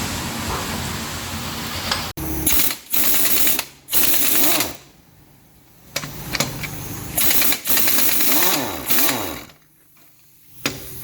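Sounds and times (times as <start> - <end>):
rattling power tool: 2.4 - 4.9, 6.0 - 11.0.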